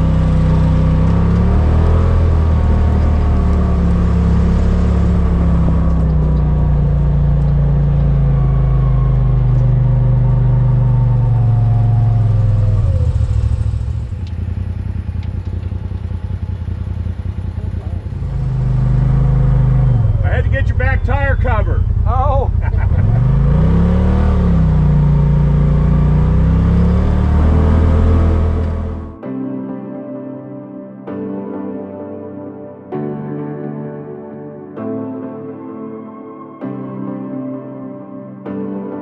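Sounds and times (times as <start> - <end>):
vehicle engine accelerating: 0.0 - 29.2.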